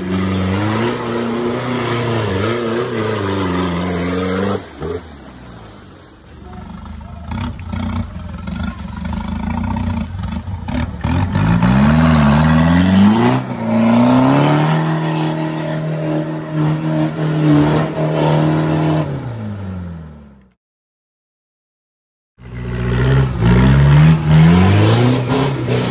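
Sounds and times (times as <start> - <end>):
vehicle engine revving hard: 9.4 - 19.5, 22.5 - 25.9.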